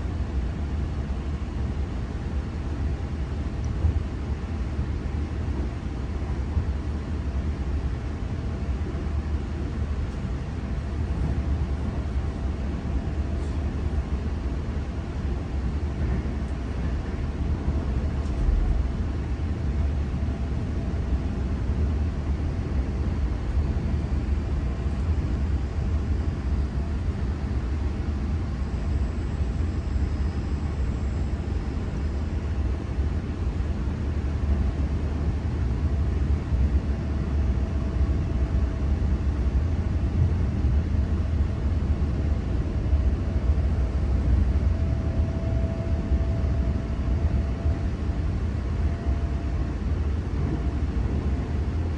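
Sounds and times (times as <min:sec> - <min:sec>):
electric train rumbling: 0:00.0 - 0:51.9
faint whining tones: 0:23.5 - 0:33.6.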